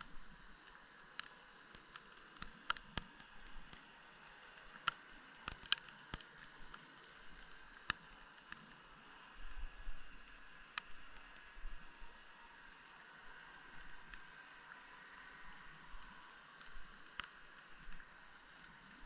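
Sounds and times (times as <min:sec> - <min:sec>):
faint steady hiss: 0:00.0 - 0:19.0
underwater clicks and ticks: 0:00.0 - 0:19.0.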